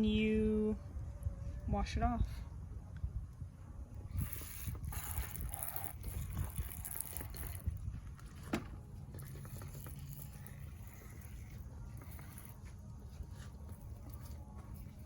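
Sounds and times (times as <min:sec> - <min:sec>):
garden hose spraying water: 0:04.1 - 0:07.8, 0:09.2 - 0:13.1.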